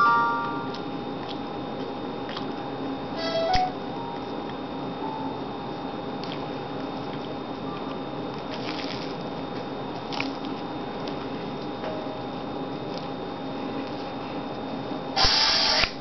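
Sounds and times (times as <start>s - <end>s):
faint steady whine: 0.0s - 16.0s
man chewing a sandwich: 0.5s - 3.2s, 5.6s - 11.8s, 12.7s - 15.0s.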